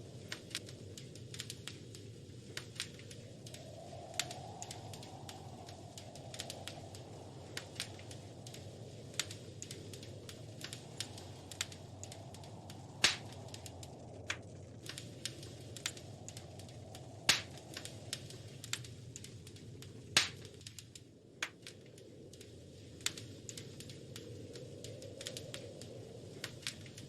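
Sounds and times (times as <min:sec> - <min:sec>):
wood fire crackling: 0:00.0 - 0:27.0
loud fire pops: 0:00.1 - 0:22.0.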